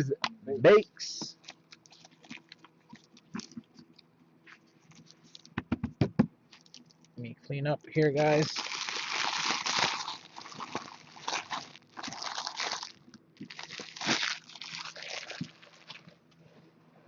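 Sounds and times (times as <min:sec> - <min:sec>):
foil wrappers crinkling: 0:01.3 - 0:03.9, 0:06.5 - 0:07.1, 0:08.2 - 0:16.3.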